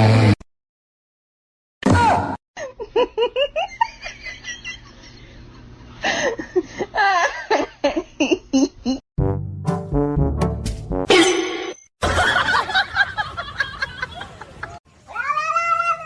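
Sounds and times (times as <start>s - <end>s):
person laughing: 2.6s - 9.0s, 12.0s - 14.8s.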